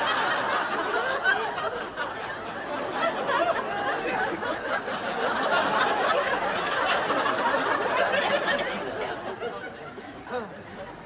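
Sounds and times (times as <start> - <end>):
audience laughing: 0.0 - 11.0.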